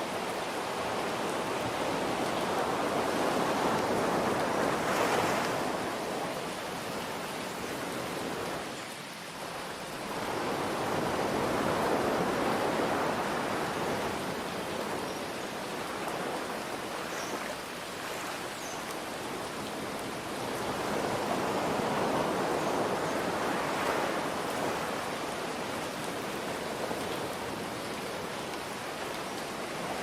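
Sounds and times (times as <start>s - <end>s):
ocean waves washing: 0.0s - 30.0s
rain hiss: 0.0s - 30.0s.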